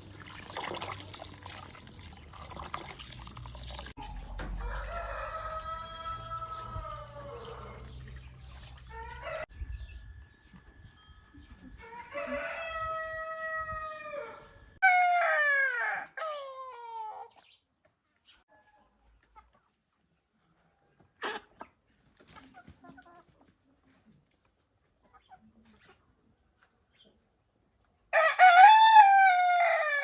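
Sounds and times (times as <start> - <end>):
rooster crowing: 4.5 - 8.0, 8.9 - 9.5, 11.8 - 17.1, 28.1 - 30.0.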